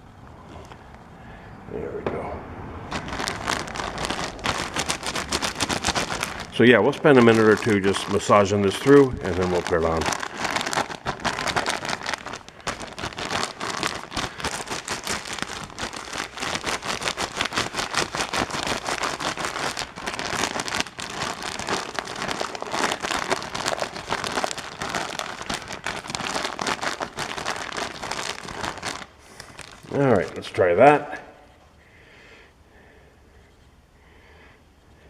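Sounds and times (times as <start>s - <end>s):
plastic bag crinkling: 2.8s - 30.9s.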